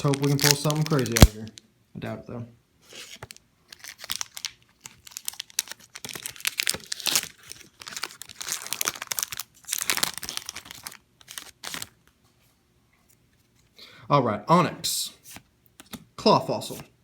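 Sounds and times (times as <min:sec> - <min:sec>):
foil pack tearing and crinkling: 0:00.0 - 0:01.5, 0:03.0 - 0:12.0.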